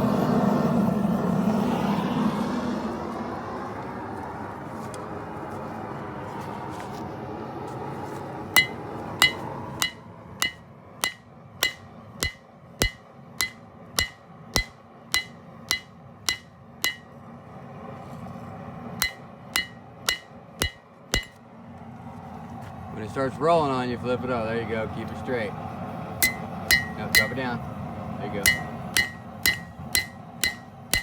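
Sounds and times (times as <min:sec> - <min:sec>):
hammer striking blade on anvil: 0:08.6 - 0:17.2, 0:19.0 - 0:21.4, 0:26.2 - 0:27.6, 0:28.4 - 0:31.0.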